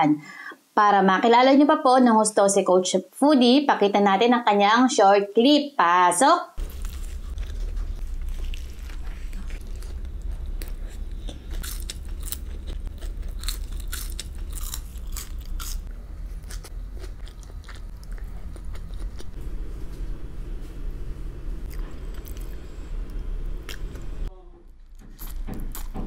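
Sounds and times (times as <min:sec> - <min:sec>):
crunchy food chewing: 0:06.6 - 0:19.4, 0:21.7 - 0:24.1, 0:24.9 - 0:26.0
steady low hum: 0:06.6 - 0:26.0.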